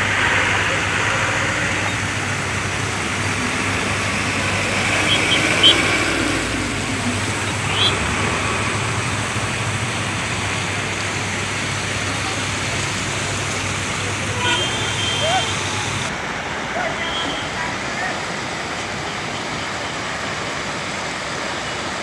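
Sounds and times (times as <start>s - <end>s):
rushing floodwater: 0.0s - 22.0s.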